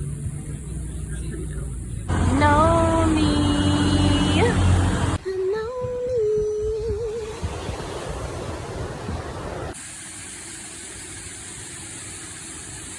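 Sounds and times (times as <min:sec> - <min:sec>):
steady hiss: 0:09.7 - 0:12.9.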